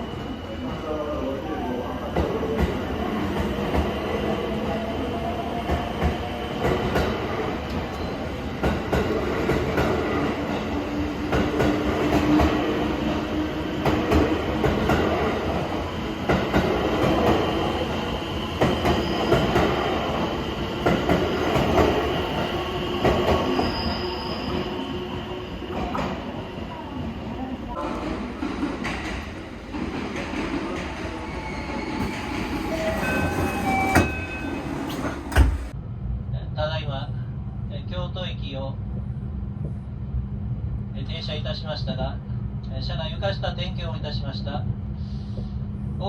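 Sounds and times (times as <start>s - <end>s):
train running gear rumble: 31.9s - 35.8s.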